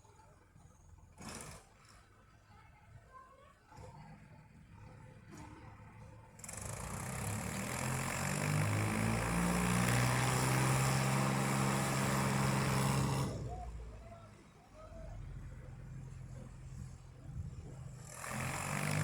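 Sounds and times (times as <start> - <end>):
tractor engine revving: 6.6 - 13.6, 18.1 - 19.0.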